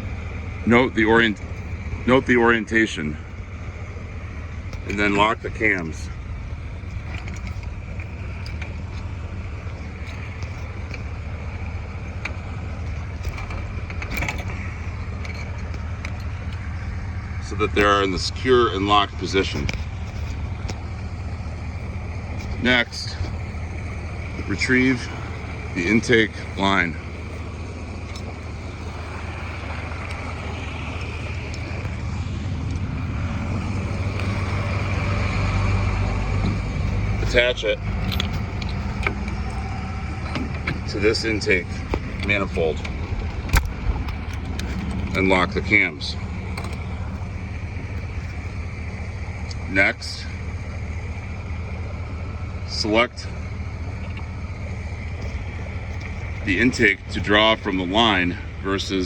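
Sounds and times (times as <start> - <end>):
low engine hum: 0.0 - 59.0
low rumble: 0.0 - 59.0
metal lever clicks: 13.0 - 16.6, 37.3 - 45.3.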